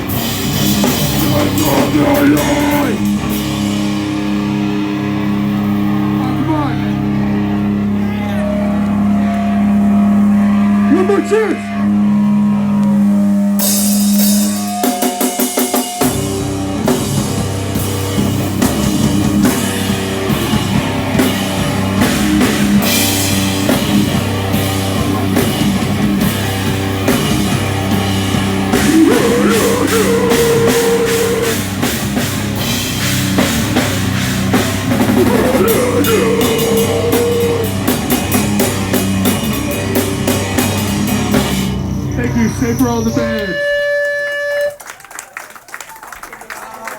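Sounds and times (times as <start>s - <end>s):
drum kit: 0.0s - 6.1s, 13.6s - 41.9s
heavy rock band playing: 0.0s - 43.4s.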